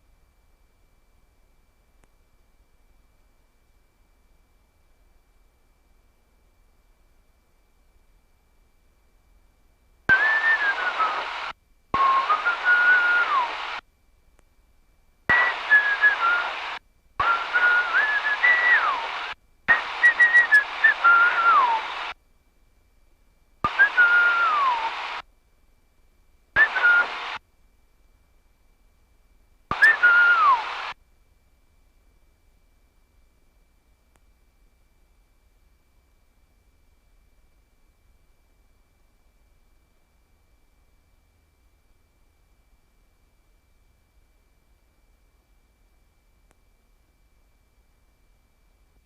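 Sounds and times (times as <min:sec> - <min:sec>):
radio hiss: 0:10.1 - 0:13.8, 0:15.3 - 0:22.2, 0:23.6 - 0:25.2, 0:26.5 - 0:27.4, 0:29.7 - 0:31.0
sliding radio whistle: 0:10.1 - 0:13.8, 0:15.3 - 0:22.2, 0:23.7 - 0:25.2, 0:26.6 - 0:27.4, 0:29.7 - 0:31.0.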